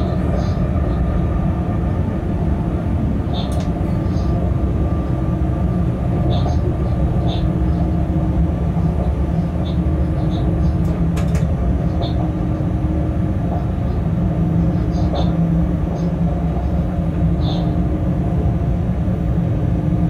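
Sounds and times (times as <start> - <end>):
locomotive low rumble: 0.0 - 20.0.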